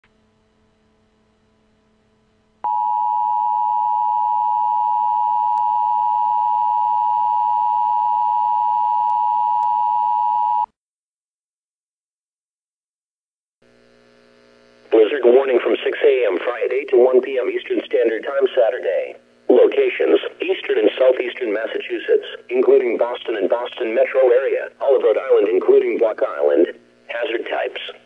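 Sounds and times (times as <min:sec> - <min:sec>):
faint hum: 0:00.1 - 0:10.7, 0:13.7 - 0:28.0
two-tone alarm: 0:02.6 - 0:10.7.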